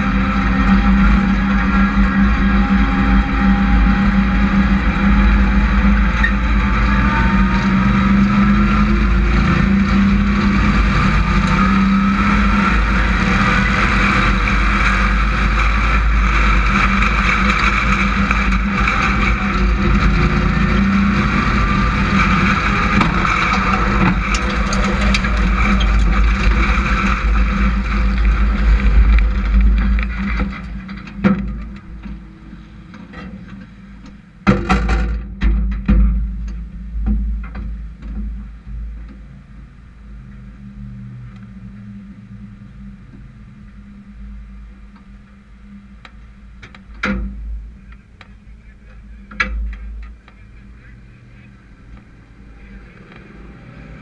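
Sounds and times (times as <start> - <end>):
race truck engines passing: 0.0 - 34.6, 36.1 - 54.0.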